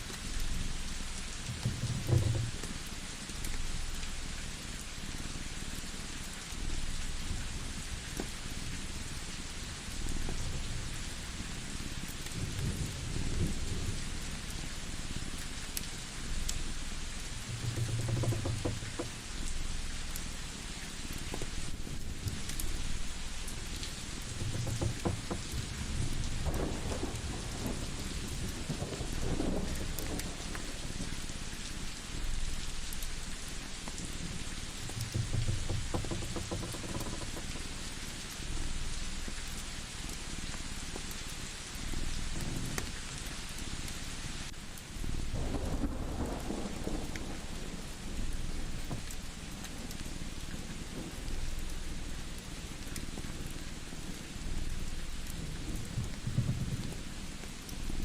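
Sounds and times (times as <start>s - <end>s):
fire crackling and popping: 0.0s - 47.3s
steady rain: 0.0s - 58.0s
low rumbles of thunder: 10.0s - 20.2s, 21.8s - 37.7s, 45.0s - 58.0s
low pulsing purr-like rumble: 16.1s - 20.6s.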